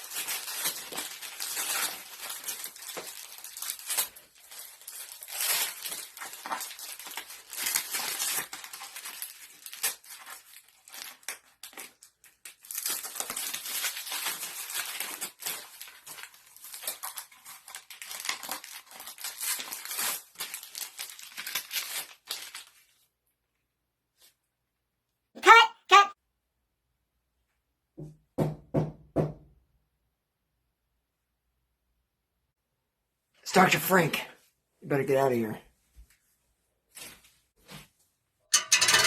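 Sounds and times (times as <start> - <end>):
wrapping paper crinkling and tearing: 0.0 - 23.1.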